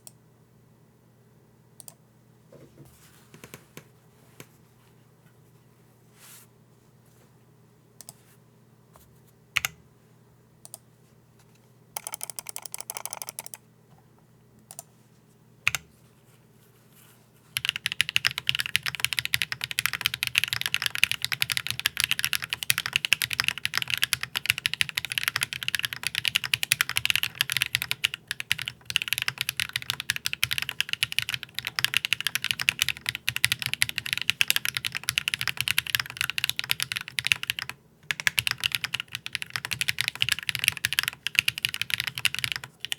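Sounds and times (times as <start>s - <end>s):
typing on mechanical keyboard: 12.0s - 13.6s, 17.6s - 42.9s.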